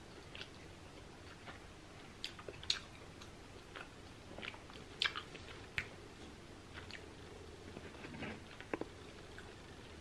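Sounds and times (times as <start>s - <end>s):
person chewing with mouth closed: 0.2s - 6.0s, 6.7s - 7.1s.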